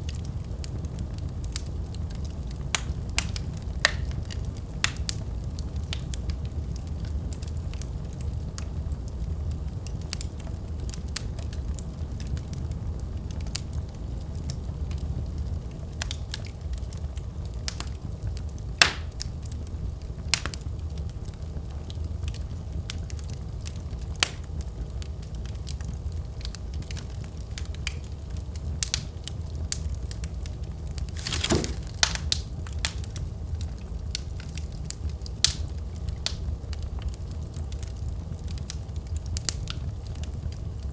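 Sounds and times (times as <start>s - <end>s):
low rumble of flame: 0.0s - 40.9s
logs crackling and popping: 26.2s - 40.5s.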